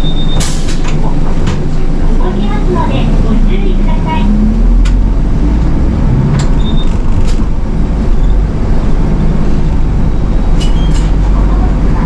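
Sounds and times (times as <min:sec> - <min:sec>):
bus engine and road noise: 0:00.0 - 0:12.0.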